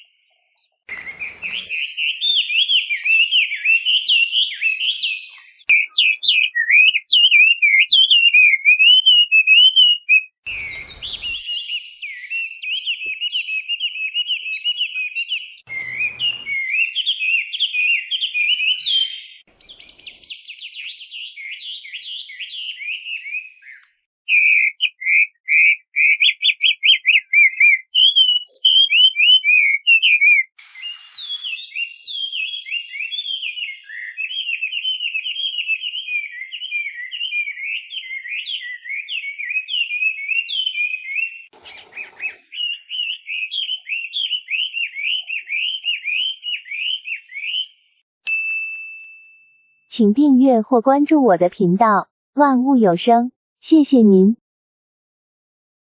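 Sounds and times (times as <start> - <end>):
bird singing whistled phrases: 0.9 - 48.0
brief hiss: 30.6 - 31.7.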